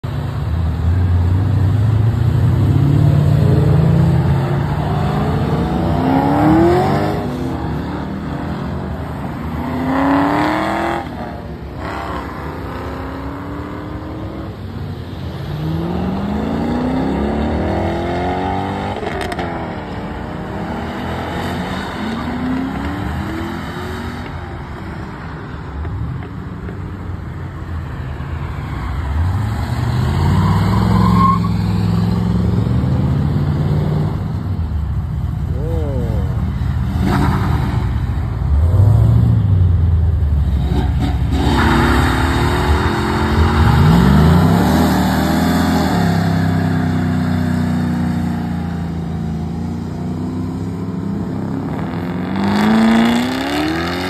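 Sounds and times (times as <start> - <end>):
cars accelerating away: 1.0 - 14.7, 15.3 - 25.0, 35.6 - 54.0.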